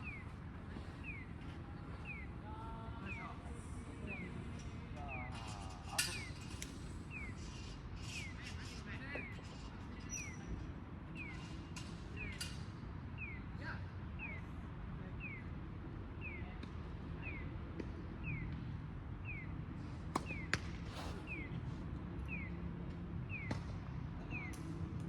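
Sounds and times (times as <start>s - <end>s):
tennis balls being struck: 20.0s - 21.4s.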